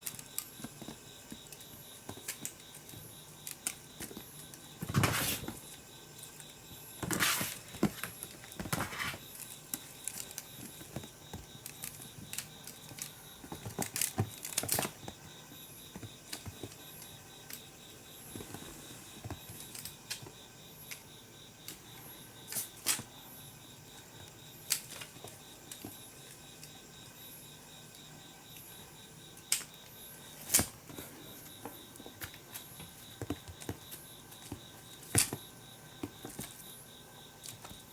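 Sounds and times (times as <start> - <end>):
kittens scuffling: 0.1 - 5.7, 7.0 - 17.6, 18.2 - 20.2.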